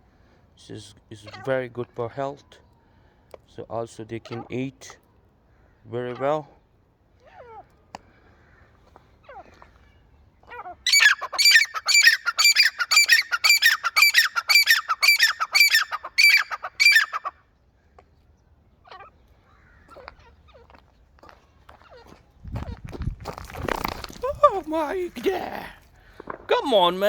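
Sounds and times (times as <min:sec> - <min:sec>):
francolin calling: 0:10.9 - 0:17.3.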